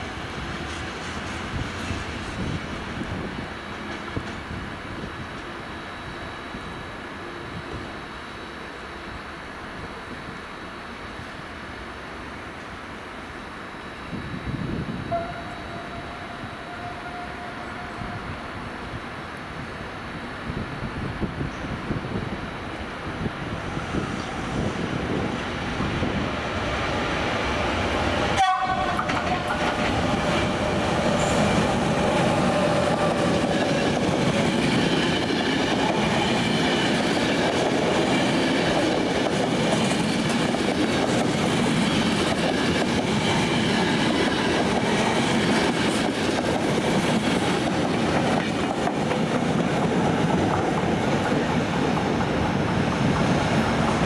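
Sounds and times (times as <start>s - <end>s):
train wheels rushing on rail: 0.0s - 54.0s
train horn: 15.0s - 18.6s, 28.3s - 31.7s.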